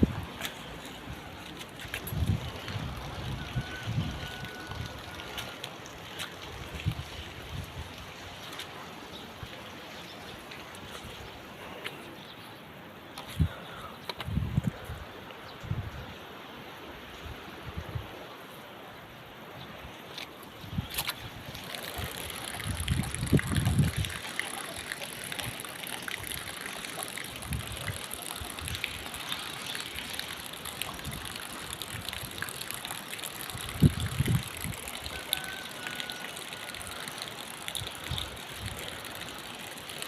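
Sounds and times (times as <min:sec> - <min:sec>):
running water rushing: 0:00.0 - 0:13.4, 0:18.2 - 0:40.0.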